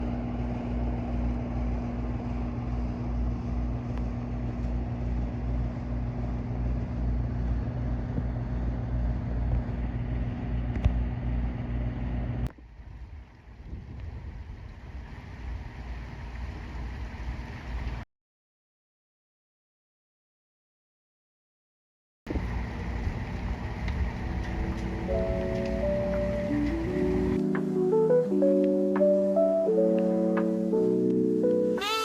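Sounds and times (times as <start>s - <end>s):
mechanical hum with pulsing rumble: 0.0s - 18.0s, 22.3s - 27.4s.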